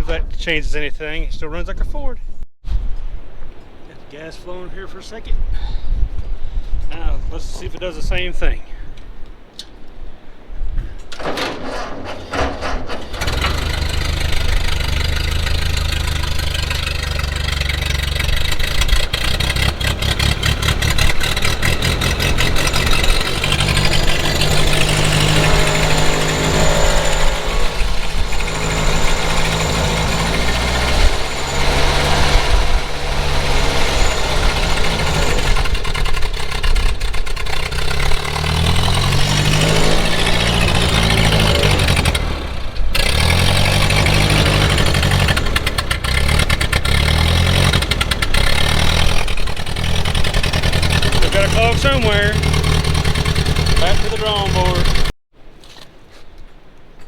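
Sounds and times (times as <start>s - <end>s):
tractor engine running unevenly: 11.2s - 55.1s.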